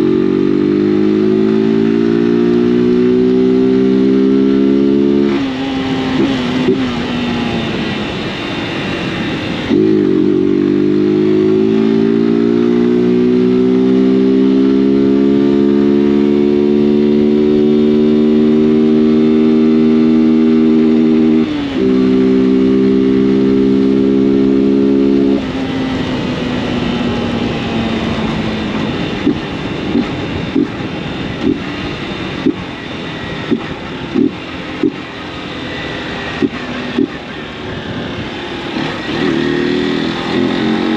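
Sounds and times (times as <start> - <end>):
motorcycle engine under throttle: 0.0 - 40.9
exhaust popping: 28.8 - 35.2, 36.3 - 37.6.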